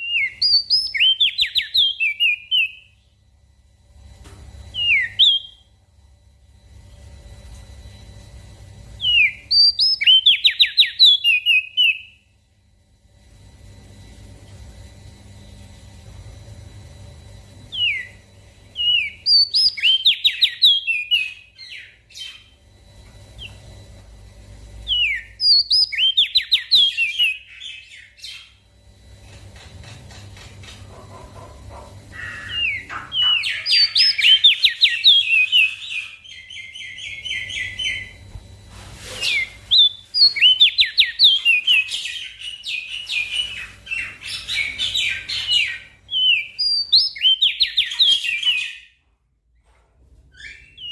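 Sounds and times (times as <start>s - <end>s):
bird chirping rapidly: 0.0s - 2.9s, 9.0s - 12.1s, 18.8s - 22.5s, 24.9s - 28.6s, 32.1s - 38.2s, 39.3s - 48.9s.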